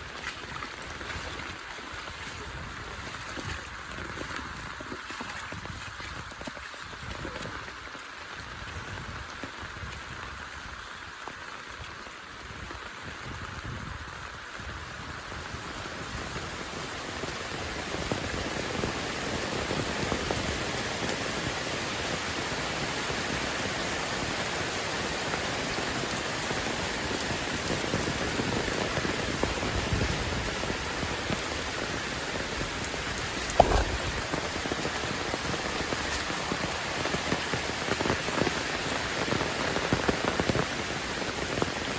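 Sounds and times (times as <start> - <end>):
heavy rain falling: 7.2 - 41.9
sharp thump: 33.5 - 34.2.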